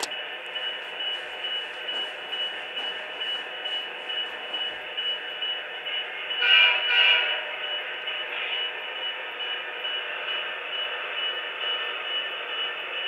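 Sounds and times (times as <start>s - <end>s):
diesel engine running: 0.0s - 5.8s.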